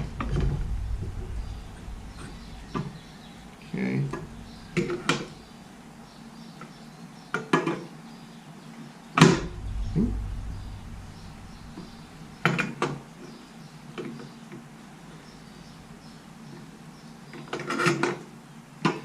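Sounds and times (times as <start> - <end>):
low rumble: 0.0 - 6.4, 9.2 - 12.8, 15.0 - 17.1.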